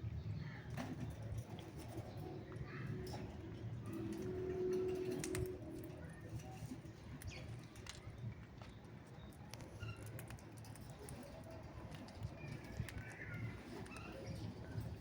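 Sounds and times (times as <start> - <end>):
bird chirps and clicks: 7.0 - 15.0.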